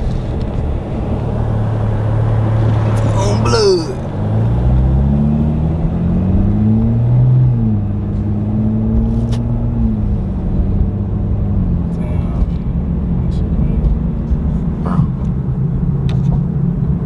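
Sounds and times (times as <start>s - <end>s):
car engine accelerating: 0.0s - 3.2s.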